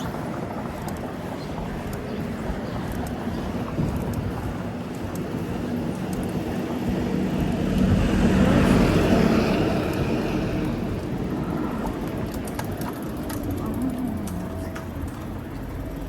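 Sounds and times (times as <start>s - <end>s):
road traffic: 0.0s - 16.0s
vehicle passing close by: 6.8s - 12.4s.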